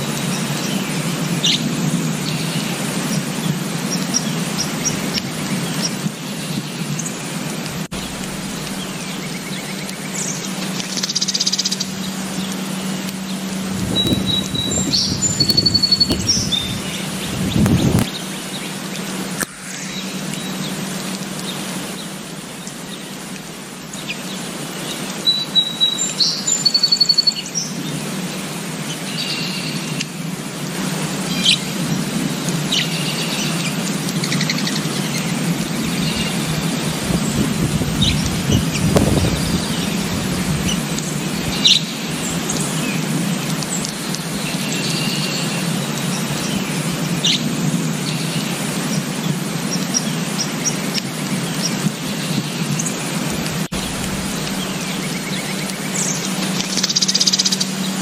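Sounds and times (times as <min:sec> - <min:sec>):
birds chirping: 0:00.2 - 0:30.0, 0:32.7 - 0:58.0
low background rumble: 0:06.4 - 0:24.4, 0:51.9 - 0:58.0.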